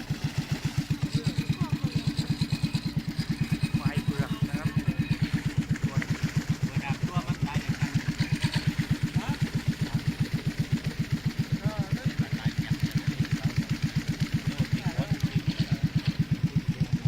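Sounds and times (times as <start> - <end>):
boat engine low thumping: 0.0 - 17.0.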